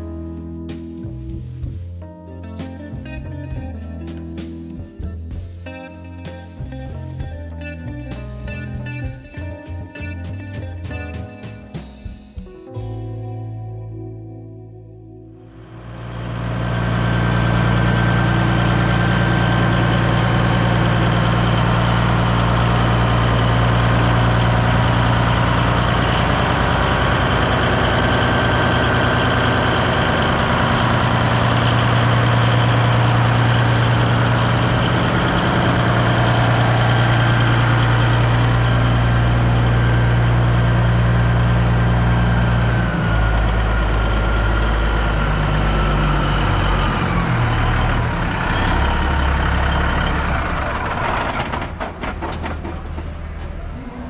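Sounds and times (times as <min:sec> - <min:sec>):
diesel truck engine idling: 0:15.6 - 0:54.0.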